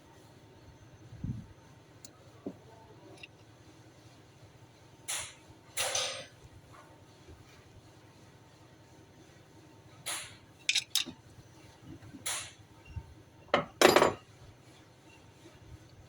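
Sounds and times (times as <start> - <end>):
metal tools clinking and scraping: 5.8 - 6.3, 10.6 - 11.2, 13.6 - 14.2.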